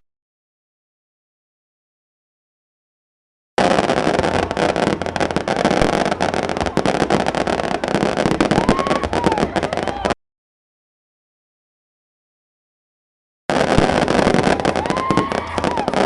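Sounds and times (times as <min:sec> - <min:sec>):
firework whistle: 0:03.6 - 0:10.2, 0:13.5 - 0:16.0
fireworks crackling: 0:03.6 - 0:10.2, 0:13.5 - 0:16.0.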